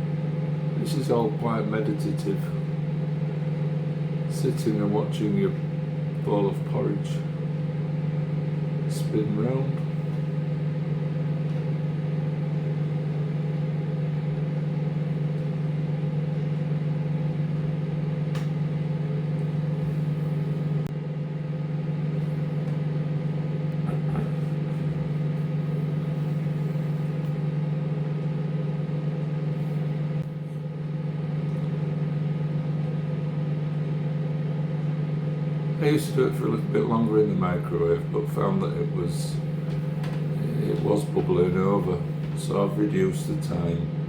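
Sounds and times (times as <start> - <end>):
microwave oven humming: 0.0 - 44.0.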